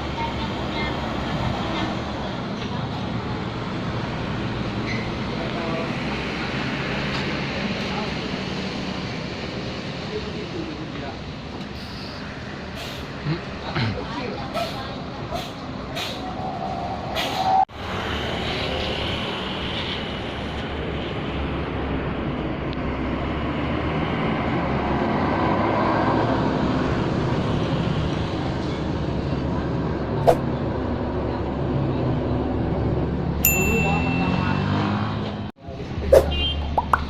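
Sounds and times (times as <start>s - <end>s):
bus engine hum and road noise: 0.0s - 37.0s
short high beep: 33.5s - 35.0s.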